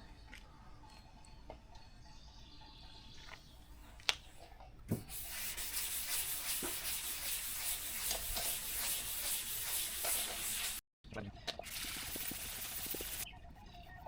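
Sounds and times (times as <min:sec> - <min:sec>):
sandpaper rubbing on car hood: 0:05.0 - 0:10.8.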